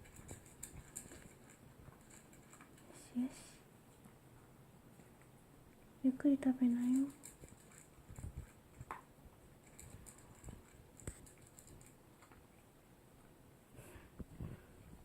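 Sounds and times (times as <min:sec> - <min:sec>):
dog crunching dry kibble: 0:00.0 - 0:02.8, 0:06.8 - 0:09.0, 0:09.6 - 0:12.4.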